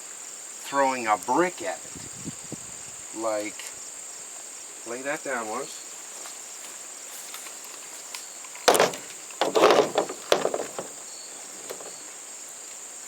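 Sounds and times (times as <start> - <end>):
crickets chirping: 0.0 - 13.0
rustling and clattering: 7.2 - 12.2.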